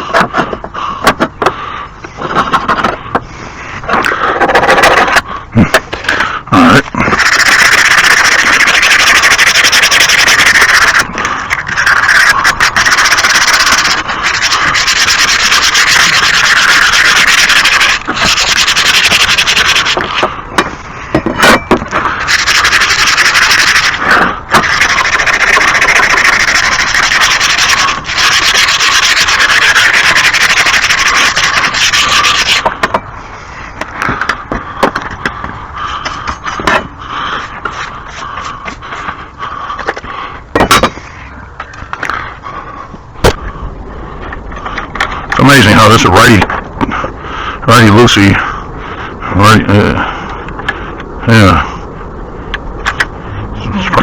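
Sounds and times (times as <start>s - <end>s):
scraping grass off lawn mower: 6.9s - 20.4s, 21.4s - 32.9s.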